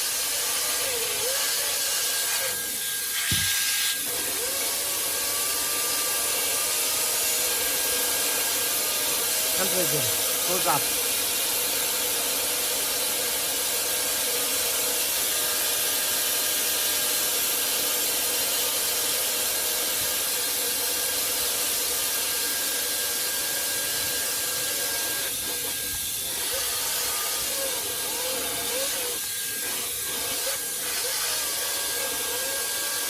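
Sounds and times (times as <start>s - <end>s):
hair dryer running: 3.1s - 11.6s.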